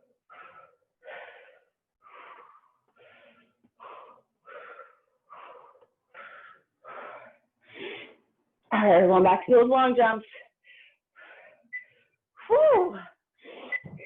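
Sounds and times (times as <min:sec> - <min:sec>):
person breathing hard: 0:00.0 - 0:08.3, 0:10.4 - 0:12.2.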